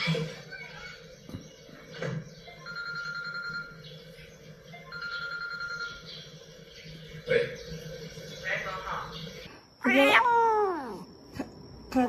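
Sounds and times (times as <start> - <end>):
telephone ringing: 2.5 - 3.9, 4.7 - 6.1.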